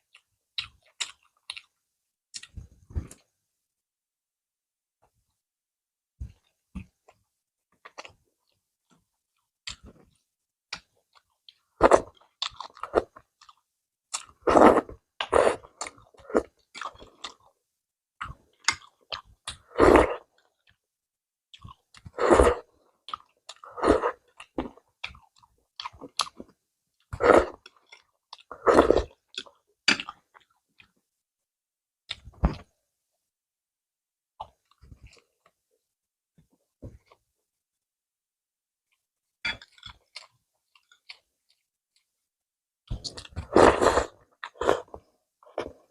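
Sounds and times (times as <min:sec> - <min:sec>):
person chewing food: 0:00.0 - 0:01.8, 0:07.8 - 0:08.6, 0:09.6 - 0:17.6, 0:18.2 - 0:20.8, 0:21.5 - 0:31.0, 0:39.5 - 0:42.1, 0:42.9 - 0:45.9.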